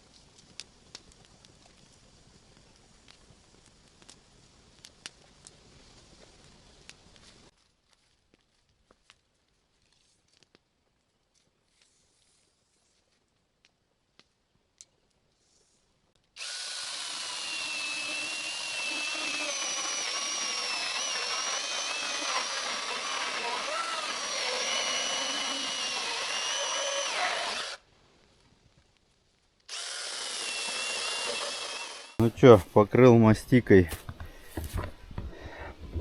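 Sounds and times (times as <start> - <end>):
power drill whining: 16.4 - 27.8, 29.7 - 32.2.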